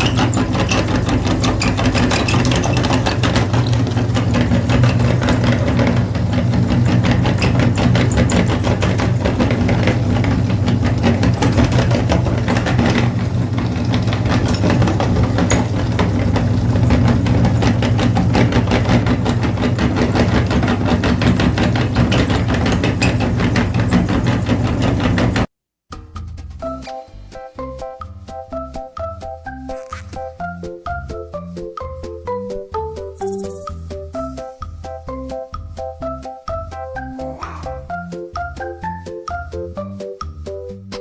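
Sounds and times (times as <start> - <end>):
tractor engine running: 0.0 - 25.5.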